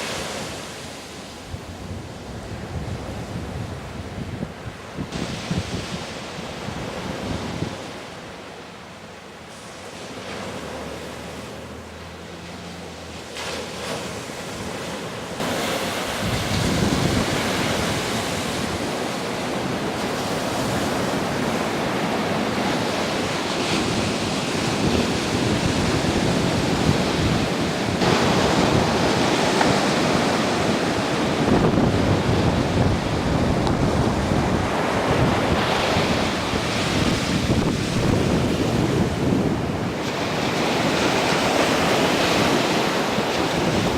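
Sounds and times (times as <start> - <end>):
wind buffeting microphone: 0.0 - 8.0, 15.4 - 43.9.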